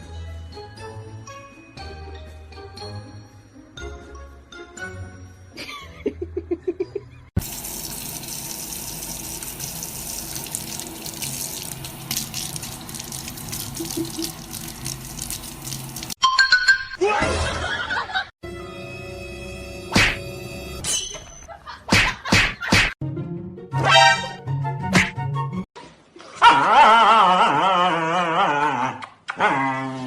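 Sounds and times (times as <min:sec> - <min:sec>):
background music: 0:00.0 - 0:07.3, 0:23.0 - 0:25.7
tap water running: 0:07.4 - 0:16.2.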